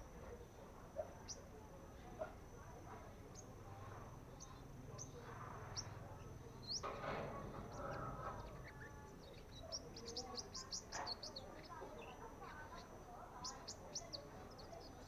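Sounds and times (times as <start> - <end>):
young birds chirping: 4.3 - 15.0.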